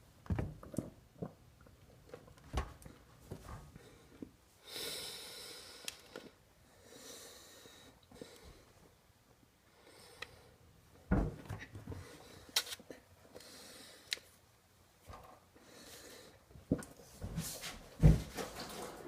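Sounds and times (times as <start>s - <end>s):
man breathing heavily through nose: 3.7s - 8.9s, 9.7s - 10.6s, 13.3s - 14.2s, 15.6s - 16.6s
long hissing breaths: 3.8s - 8.8s, 9.7s - 10.6s, 13.4s - 14.2s.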